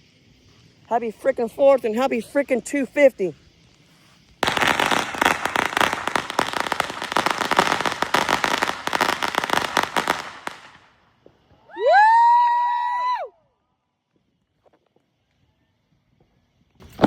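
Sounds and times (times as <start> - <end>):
firecrackers crackling: 0.0 - 13.2, 16.8 - 17.0.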